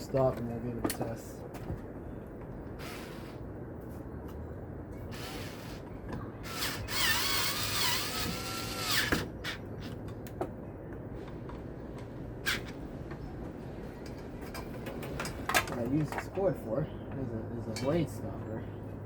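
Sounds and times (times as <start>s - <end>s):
power drill motor whining: 6.4s - 9.2s.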